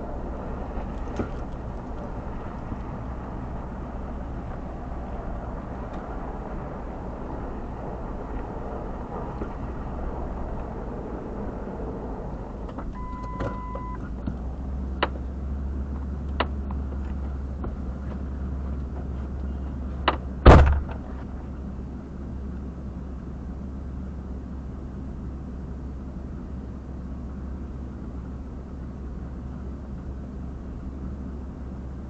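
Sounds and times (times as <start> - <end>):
low rumble inside car: 0.0 - 32.0
electronic beep: 13.0 - 14.0
loud thump: 20.4 - 21.2.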